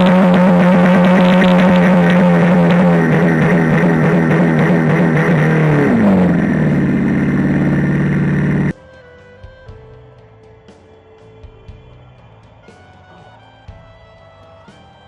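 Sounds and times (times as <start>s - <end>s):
vehicle droning tone: 0.0s - 8.8s
faint music: 7.9s - 15.0s.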